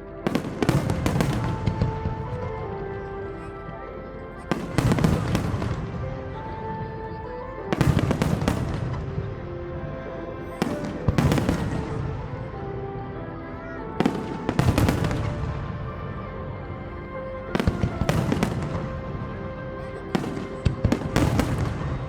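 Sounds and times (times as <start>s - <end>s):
music playing: 0.0s - 22.0s
fireworks bursting: 0.2s - 3.7s, 4.5s - 7.1s, 7.7s - 9.4s, 10.4s - 12.7s, 14.0s - 16.2s, 17.5s - 19.4s, 20.0s - 22.0s.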